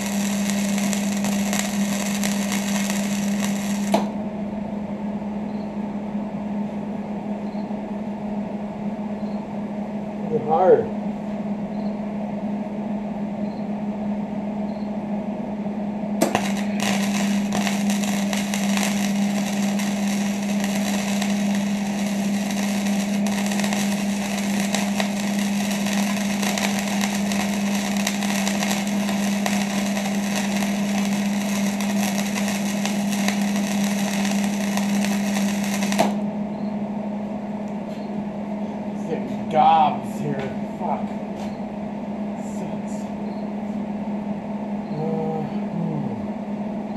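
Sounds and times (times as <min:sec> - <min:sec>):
welding arc crackling: 0:00.0 - 0:04.2, 0:16.2 - 0:36.2
welder low hum: 0:00.0 - 0:46.9.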